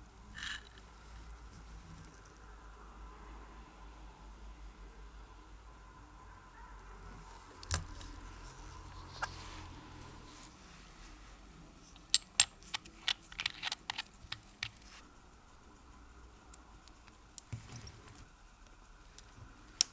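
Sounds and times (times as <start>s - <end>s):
small metallic clicks and taps: 12.0s - 15.0s.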